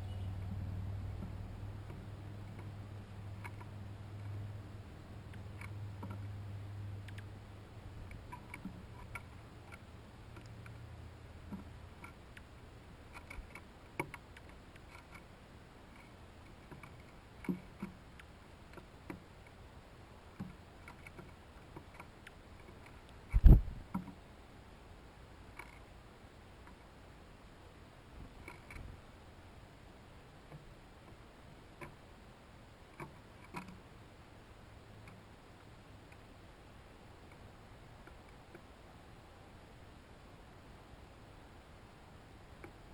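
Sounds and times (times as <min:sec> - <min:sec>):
animals clicking at seed feeder: 0:00.2 - 0:19.6, 0:20.2 - 0:24.2, 0:25.5 - 0:25.9, 0:26.6 - 0:27.0, 0:28.2 - 0:29.0, 0:32.8 - 0:33.9.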